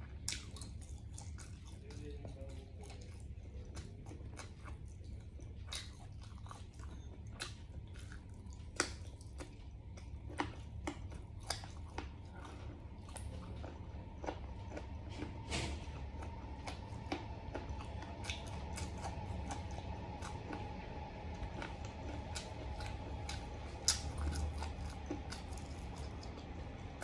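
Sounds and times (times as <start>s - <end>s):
biting and chewing: 0.0s - 27.0s
wet clicks and crunches: 21.3s - 27.0s.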